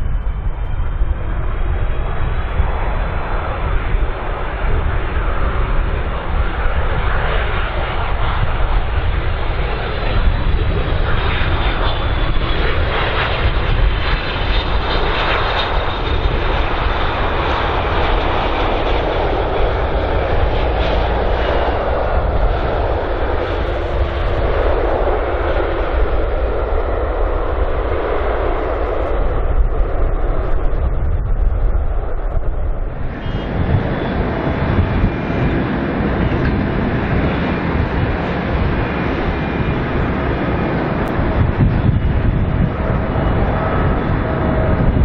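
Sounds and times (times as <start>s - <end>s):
jet airliner engines rumbling: 0.0s - 45.0s.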